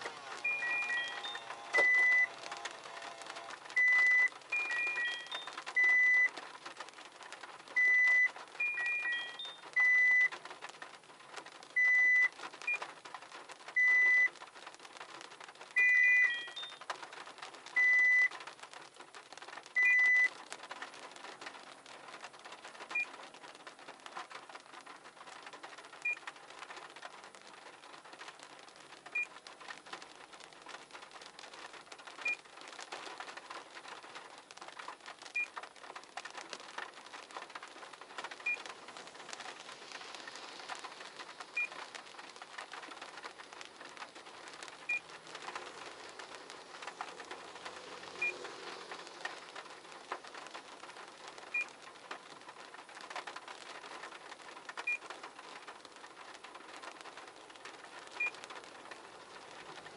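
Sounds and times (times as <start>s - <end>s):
electronic beeps: 0.4s - 3.2s, 3.8s - 6.3s, 7.8s - 10.3s, 15.8s - 16.8s.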